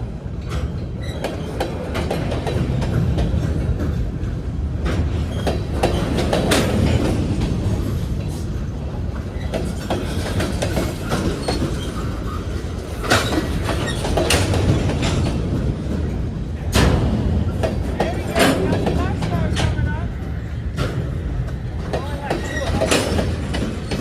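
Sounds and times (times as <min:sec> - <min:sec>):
train wheels rumbling on rail: 0:00.0 - 0:24.0
clicks and knocks at rail joints: 0:00.4 - 0:24.0
wheel squeal: 0:21.9 - 0:24.0.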